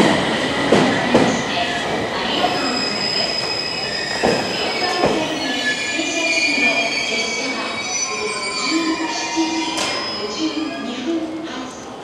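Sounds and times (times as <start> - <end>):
train brakes squealing: 2.2 - 11.0.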